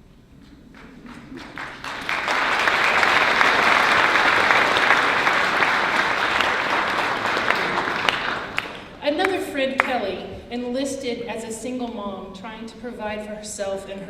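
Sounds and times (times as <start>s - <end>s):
large audience clapping: 0.7s - 10.0s.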